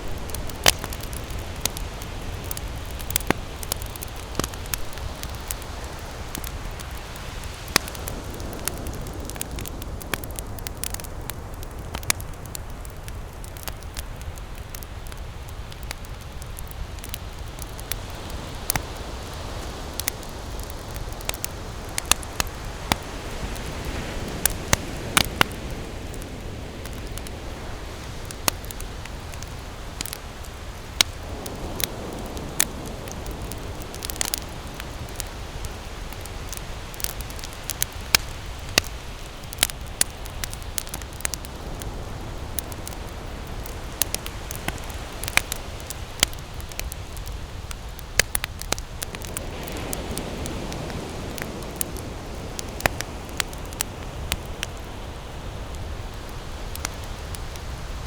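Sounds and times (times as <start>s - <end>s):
flame rushing: 0.0s - 11.1s
campfire crackling and popping: 0.0s - 58.0s.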